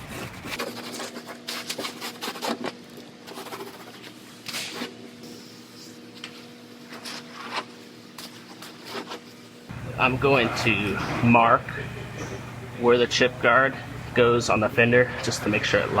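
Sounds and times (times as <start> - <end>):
scratchy rubbing of panel: 0.0 - 4.8
steady low hum: 2.6 - 16.0.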